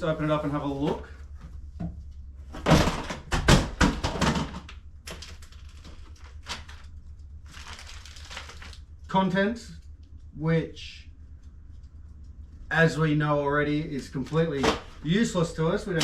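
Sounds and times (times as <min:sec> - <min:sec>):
steady low hum: 0:00.0 - 0:16.0
packaging rustling: 0:05.1 - 0:08.9, 0:14.1 - 0:15.1.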